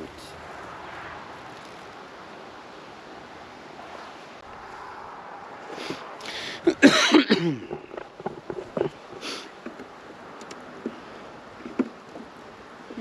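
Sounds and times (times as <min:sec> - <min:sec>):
person coughing: 0:06.5 - 0:07.7
person clearing throat: 0:06.6 - 0:07.8.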